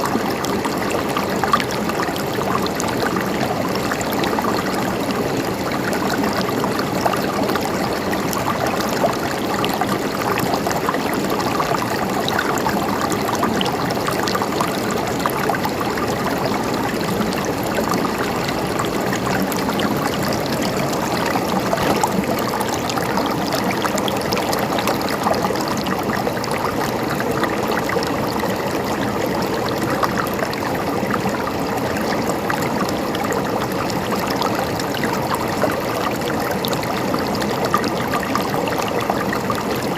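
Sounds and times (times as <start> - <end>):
small water splashes: 0.0 - 31.8
river flowing over rocks: 0.0 - 39.9.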